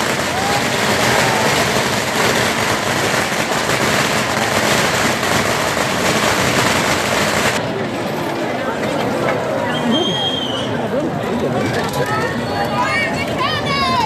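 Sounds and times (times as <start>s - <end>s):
firecrackers popping: 0.0s - 7.7s
whistle-like tone: 9.7s - 10.8s.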